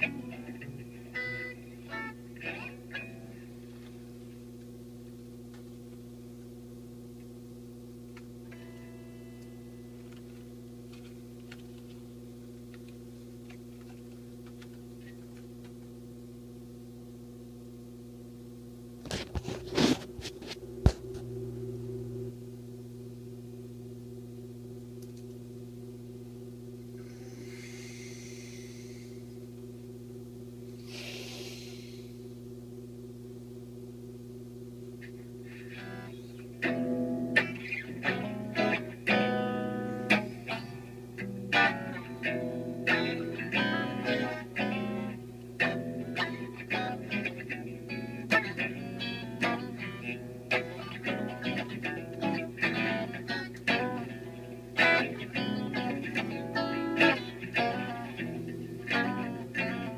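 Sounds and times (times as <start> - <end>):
low electrical hum: 0.0 - 59.9
short hisses: 27.0 - 29.3, 30.8 - 32.2.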